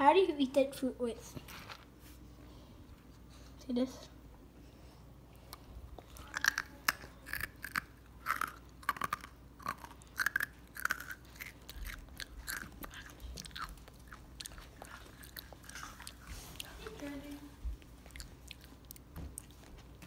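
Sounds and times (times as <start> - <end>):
person crunching dry kibble: 6.0 - 16.7.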